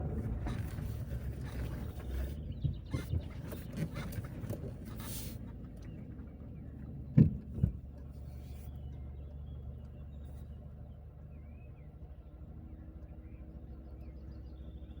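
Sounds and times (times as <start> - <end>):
car engine and tyres rumbling: 0.0 - 15.0
light knocks and rattles: 7.0 - 8.6.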